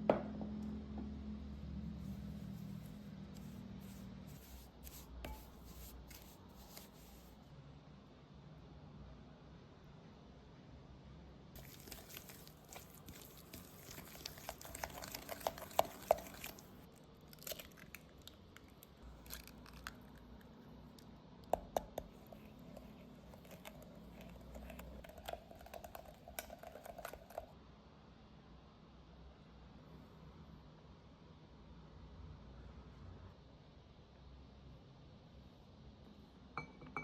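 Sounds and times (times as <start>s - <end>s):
crinkling and rustling: 11.6s - 20.4s.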